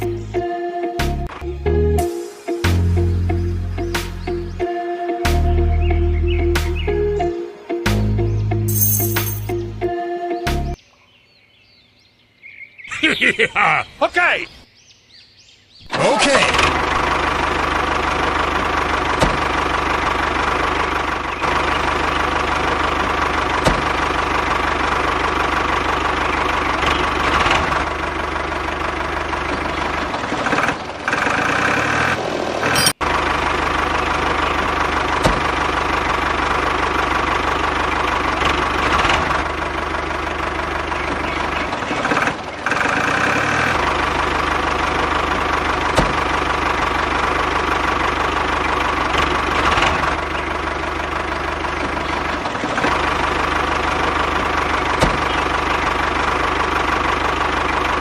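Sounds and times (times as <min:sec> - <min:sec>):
mini tractor motor running: 0:16.0 - 0:58.0.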